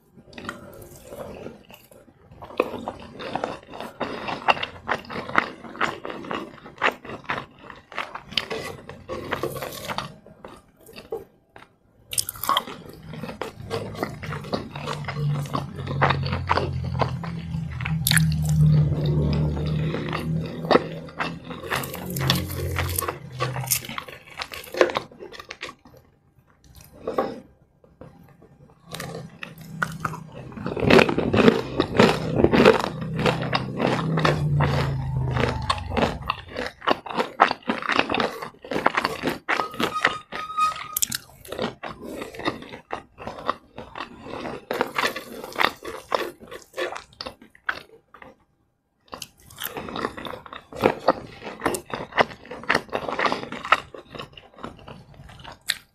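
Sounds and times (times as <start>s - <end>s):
crunching fried chicken: 0.1s - 55.9s
wet mouth sounds: 12.1s - 24.7s, 55.2s - 55.9s.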